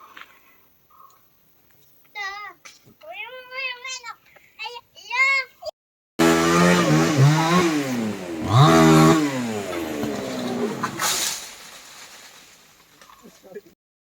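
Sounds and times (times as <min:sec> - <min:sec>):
chainsaw engine revving: 0:06.2 - 0:11.8.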